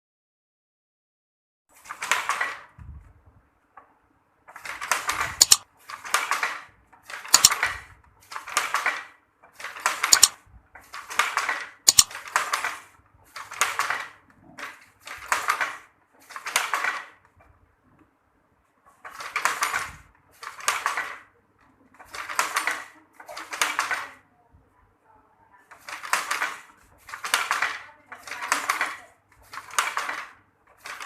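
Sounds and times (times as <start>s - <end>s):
loom sharp clack: 5.4s - 5.6s, 7.3s - 7.7s, 10.1s - 10.4s, 11.9s - 12.1s
weaving loom swishing and clattering: 11.0s - 14.1s, 22.0s - 24.1s, 25.7s - 31.0s.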